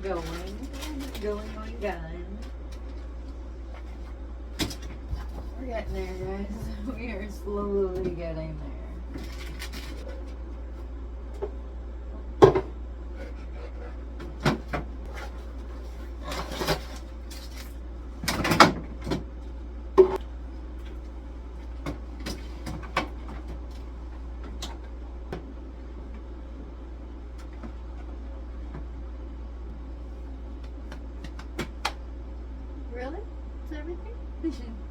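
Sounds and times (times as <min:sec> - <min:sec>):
steady low hum: 0:00.0 - 0:34.9
fridge shelves knocking and clacking: 0:03.8 - 0:10.4, 0:12.4 - 0:12.8, 0:14.2 - 0:19.4, 0:21.8 - 0:25.5, 0:30.6 - 0:32.0.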